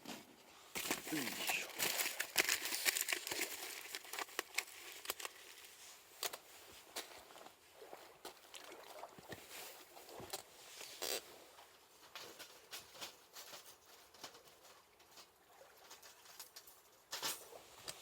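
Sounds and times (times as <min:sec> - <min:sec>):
aluminium foil crinkling: 0:00.8 - 0:06.4.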